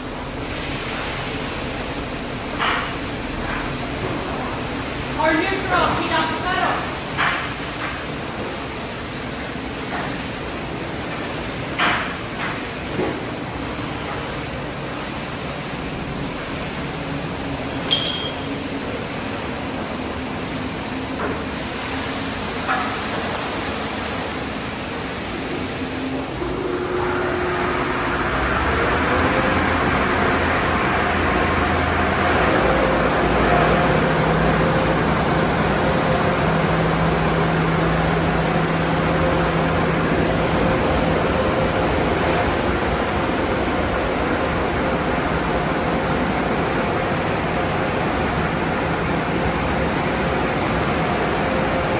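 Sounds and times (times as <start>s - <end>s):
car wash equipment running: 0.0s - 51.9s
knocks and clinks: 17.9s - 18.5s
motor hum: 25.8s - 45.6s.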